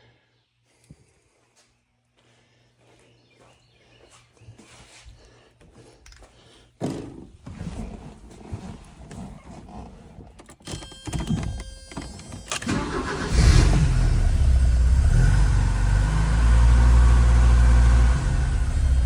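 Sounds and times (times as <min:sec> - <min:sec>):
starter motor cranking engine: 0:10.5 - 0:15.5.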